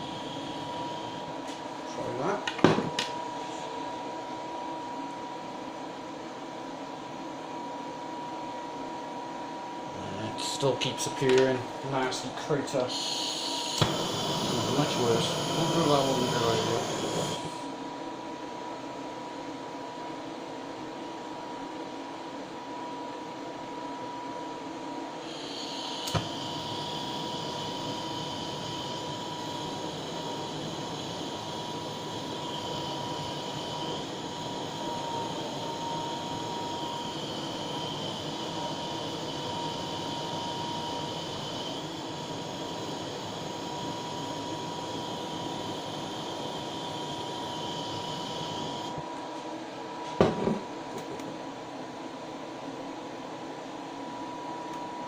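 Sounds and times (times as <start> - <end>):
blowtorch flame hissing: 0.0 - 2.2, 11.9 - 17.8, 25.2 - 49.0.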